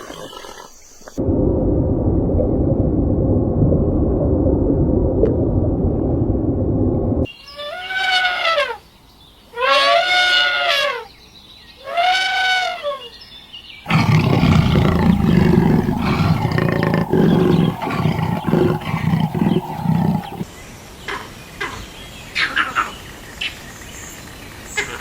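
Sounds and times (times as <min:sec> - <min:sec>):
drawn-out animal calls: 0:13.9 - 0:20.4
big cat growling roar: 0:13.9 - 0:20.5.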